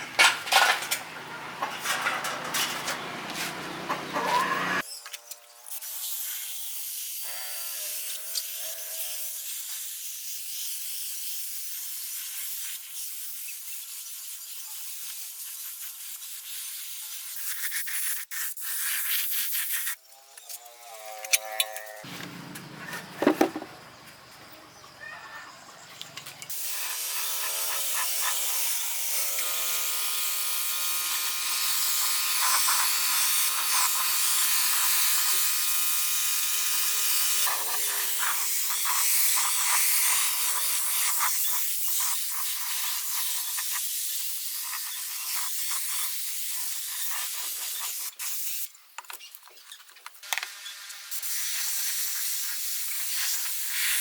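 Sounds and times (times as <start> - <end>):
machine hum: 0.0 - 4.8
compressed air hissing: 26.5 - 48.7, 50.8 - 54.0.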